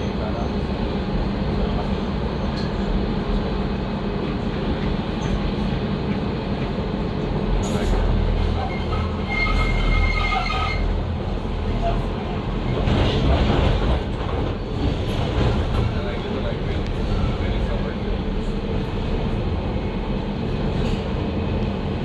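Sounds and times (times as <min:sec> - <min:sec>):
train wheels and motors rumbling: 0:00.0 - 0:22.0
high wheel squeal: 0:07.6 - 0:11.1.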